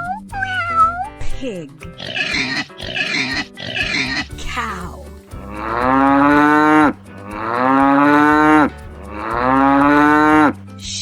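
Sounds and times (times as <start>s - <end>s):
cow mooing: 5.4s - 10.6s.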